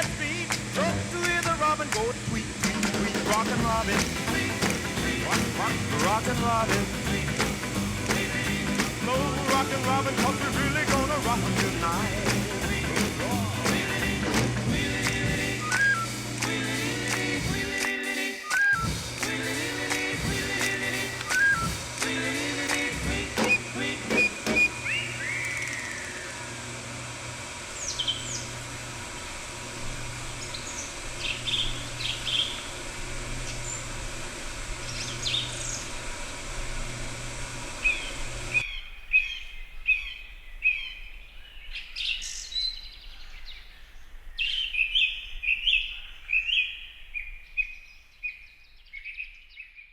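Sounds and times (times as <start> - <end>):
steady background hum: 0.0 - 48.0
songbirds chirping and calling: 27.8 - 28.6, 30.2 - 32.8, 37.8 - 49.9.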